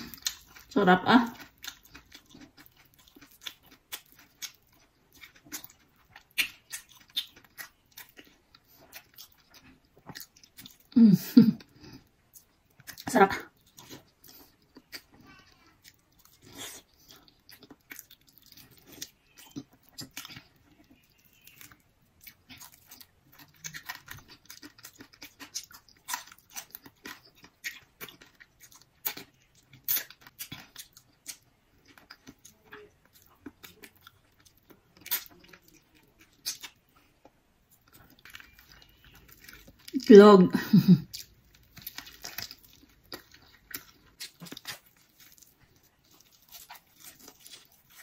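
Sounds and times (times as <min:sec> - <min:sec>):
chewing crunchy lettuce: 0:00.0 - 0:48.0.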